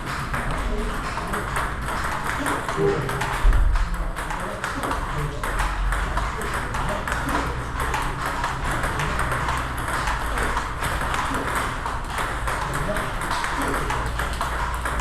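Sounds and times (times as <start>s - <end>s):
table tennis balls clicking: 0.0s - 15.0s.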